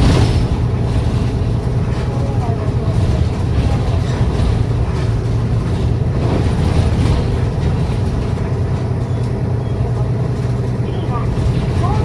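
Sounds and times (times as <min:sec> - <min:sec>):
bus engine hum: 0:00.0 - 0:12.0
road noise: 0:00.0 - 0:12.0.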